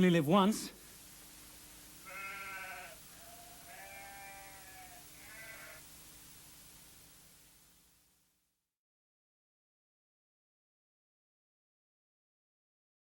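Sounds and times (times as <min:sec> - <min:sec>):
faint steady hum: 0:00.0 - 0:08.7.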